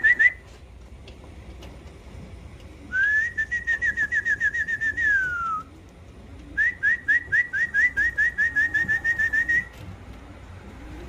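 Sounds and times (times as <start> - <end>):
whistled call with trills: 0.0 - 0.4, 2.9 - 5.7, 6.6 - 9.7.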